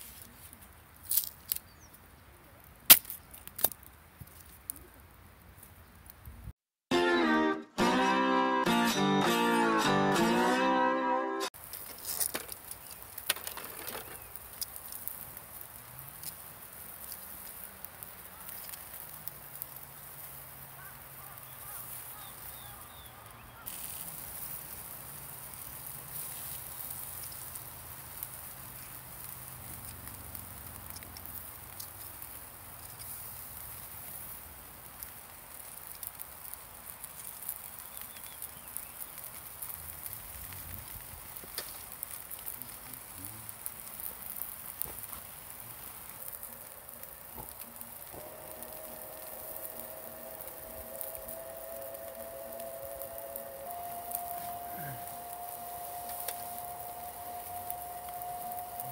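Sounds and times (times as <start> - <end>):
campfire crackling and popping: 0.0 - 6.5, 11.5 - 58.9
steady high hiss: 11.4 - 58.9
faint low drone: 47.8 - 58.9.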